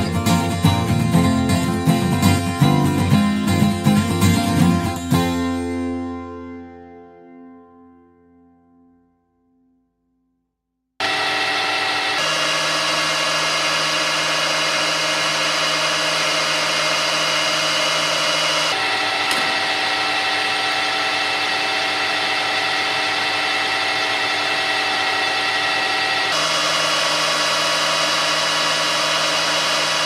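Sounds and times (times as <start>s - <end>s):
lathe motor hum: 11.0s - 30.0s
brief click: 19.2s - 19.6s.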